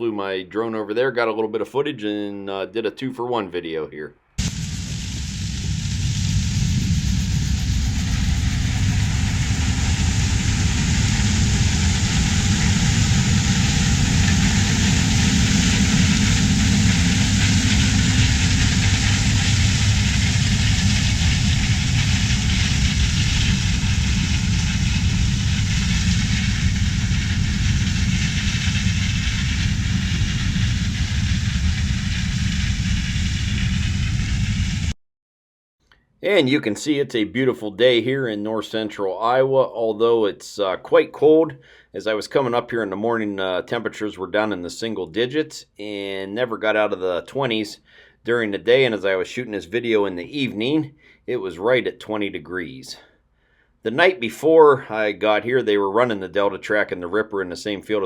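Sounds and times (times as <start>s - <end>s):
diesel harvester engine droning: 4.5s - 31.4s.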